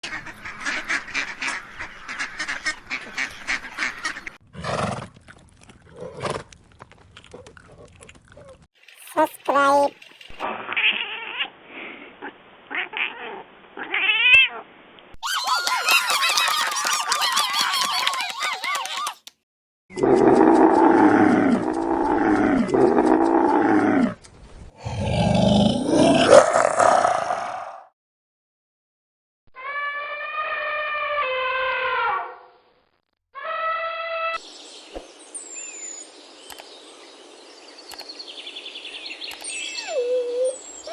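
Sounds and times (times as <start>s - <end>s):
waterfowl quacking: 0.1s - 4.4s
deep animal call: 19.9s - 24.2s.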